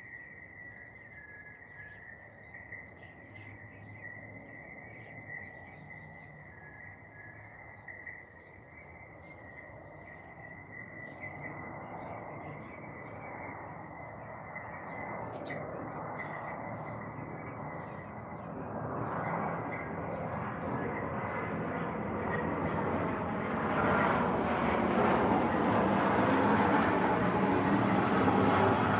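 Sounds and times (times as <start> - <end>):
garden birds chirping: 7.8 - 18.6.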